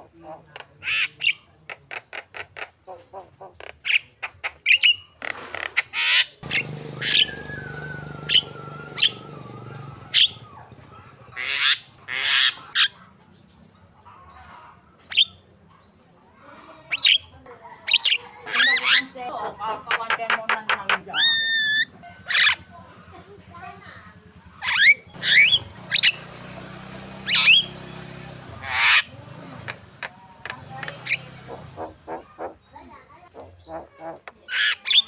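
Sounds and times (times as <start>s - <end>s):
bird chirps and squawks: 0.0s - 13.2s, 14.1s - 15.4s, 16.7s - 19.2s, 19.8s - 23.1s, 23.9s - 26.4s, 27.2s - 27.8s, 28.6s - 35.0s
long falling bird whistle: 6.4s - 11.0s.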